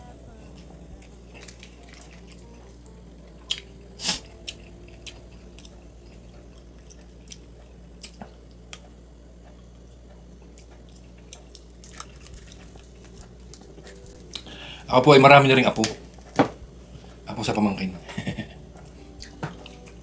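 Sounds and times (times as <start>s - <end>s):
steady low hum: 0.0s - 20.0s
wet mouth clicks and chewing: 3.5s - 8.8s, 10.5s - 14.5s.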